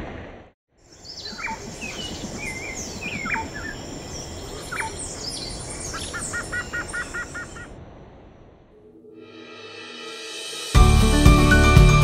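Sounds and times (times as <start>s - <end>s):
forest birds calling: 0.8s - 7.7s.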